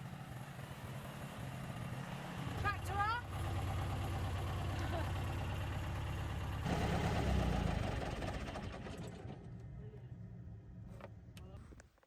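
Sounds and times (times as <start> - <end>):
tractor engine revving: 3.3 - 9.4.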